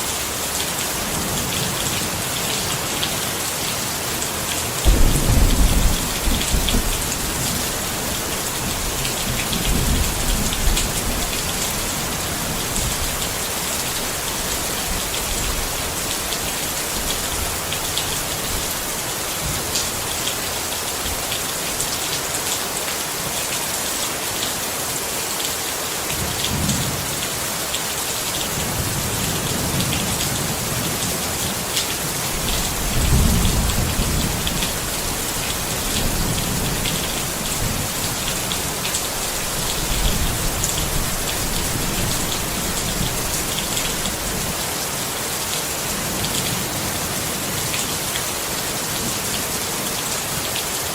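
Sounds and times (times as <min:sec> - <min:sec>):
rain pattering on a tent: 0:00.0 - 0:50.9
distant thunder rumbles: 0:04.8 - 0:11.2.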